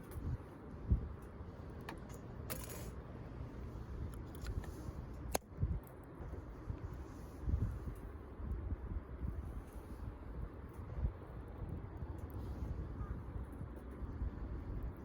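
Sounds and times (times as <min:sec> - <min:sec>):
wind on microphone: 0:03.9 - 0:15.0.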